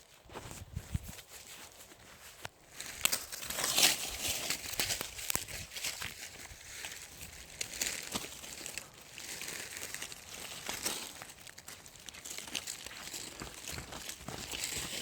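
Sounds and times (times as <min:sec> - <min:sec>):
dry leaves rustling and crackling: 0:00.0 - 0:15.0.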